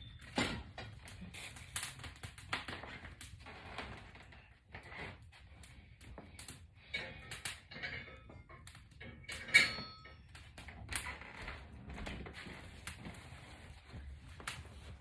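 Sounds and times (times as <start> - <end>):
braided hair rustling: 11.6 - 15.0.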